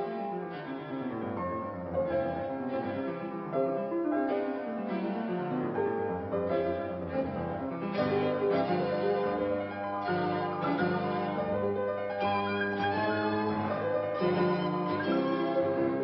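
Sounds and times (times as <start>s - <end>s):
muffled old piano music: 0.0s - 16.0s.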